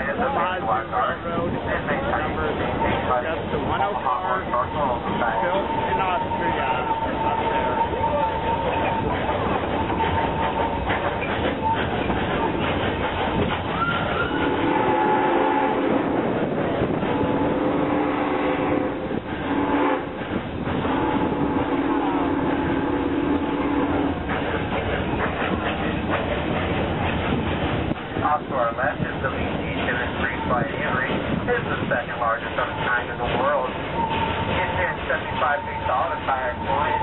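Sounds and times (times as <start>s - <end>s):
train cars rattling on track: 0.0s - 37.0s
low locomotive whistle blasts: 13.7s - 16.1s, 17.2s - 20.1s, 20.8s - 24.2s.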